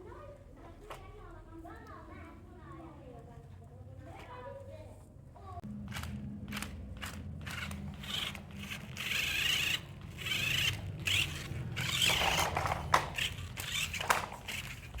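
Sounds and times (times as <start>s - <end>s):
toy car plastic clicks and rattles: 5.9s - 15.0s.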